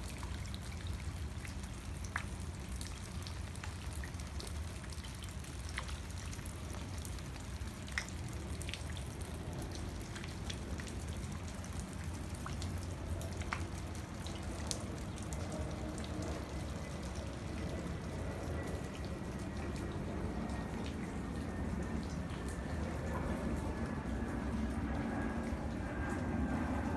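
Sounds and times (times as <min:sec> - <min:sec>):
rain falling: 0:00.0 - 0:26.9
low steady rumble: 0:00.1 - 0:26.9
drops dripping and tapping: 0:07.7 - 0:17.8, 0:18.5 - 0:24.8.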